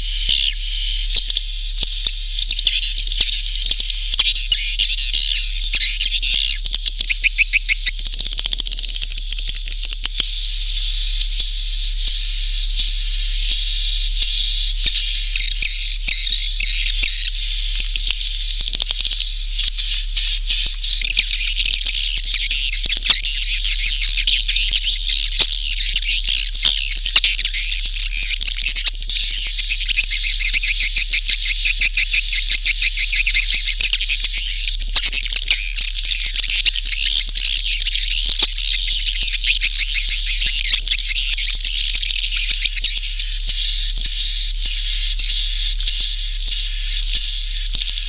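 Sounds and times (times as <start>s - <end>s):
steady low hum: 0.0s - 28.3s, 28.9s - 48.0s.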